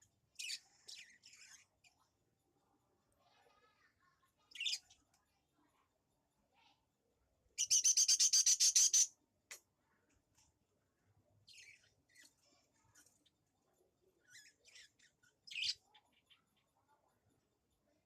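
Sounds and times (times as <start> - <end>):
bird chirping: 0.3 - 2.0, 7.6 - 9.1, 11.4 - 13.3, 14.2 - 16.9.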